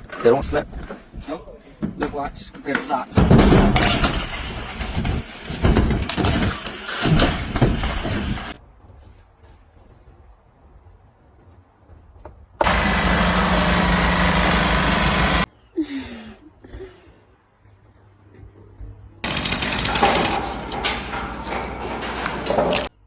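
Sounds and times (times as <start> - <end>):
rapid mechanical rattling: 3.2 - 8.6, 12.6 - 15.5, 19.2 - 23.0.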